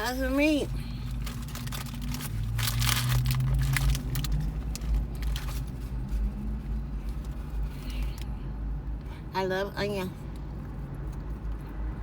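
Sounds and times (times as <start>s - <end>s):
car engine idling: 0.0s - 11.0s
wrapper crinkling: 1.0s - 6.2s.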